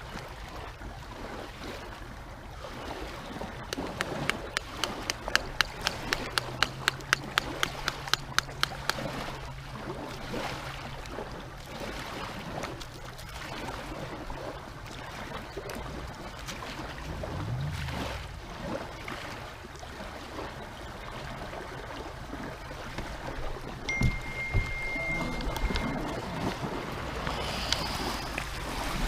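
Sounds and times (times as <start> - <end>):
water lapping around a kayak: 0.0 - 29.0
faint low hum: 16.8 - 19.6.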